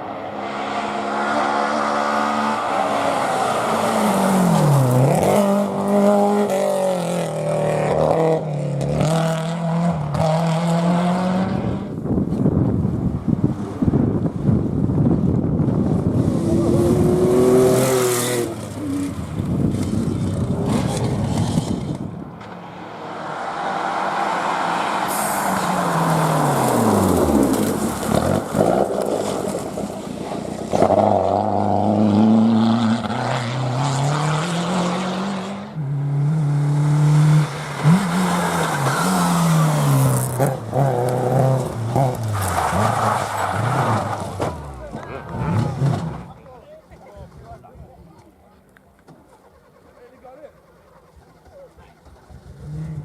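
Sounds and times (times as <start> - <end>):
rally car engines revving: 0.0 - 53.0
car passing by: 20.3 - 46.3.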